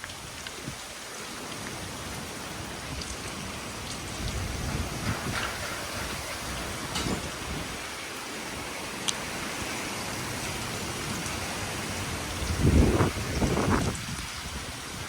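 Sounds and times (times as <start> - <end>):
wind gusting through trees: 0.0 - 15.0
wind buffeting microphone: 2.8 - 8.7, 11.2 - 15.0.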